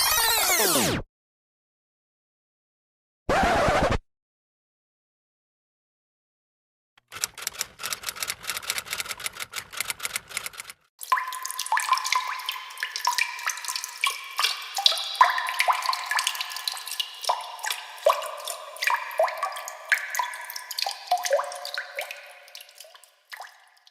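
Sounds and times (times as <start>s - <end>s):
water drops plinking into water: 11.0s - 23.9s.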